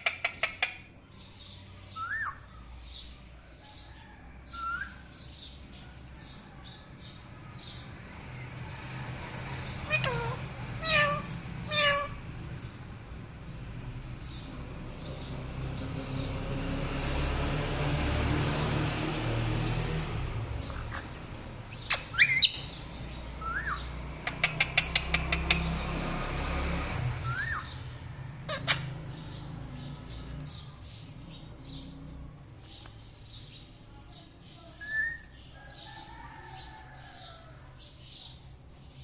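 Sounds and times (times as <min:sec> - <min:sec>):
parrot chirping rapidly: 0:00.0 - 0:00.9, 0:02.0 - 0:02.5, 0:09.6 - 0:12.2, 0:20.6 - 0:25.8, 0:27.2 - 0:27.8, 0:28.4 - 0:29.6
parrot shrieking: 0:09.8 - 0:12.2, 0:21.9 - 0:22.6, 0:23.4 - 0:23.8, 0:27.2 - 0:27.7, 0:28.5 - 0:29.0.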